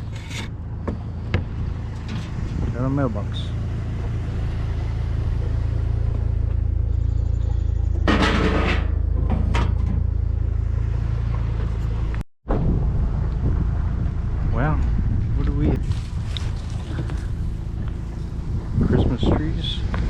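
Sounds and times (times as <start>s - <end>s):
rattling noise: 0.0s - 4.2s
truck engine and road rumble: 0.0s - 20.0s.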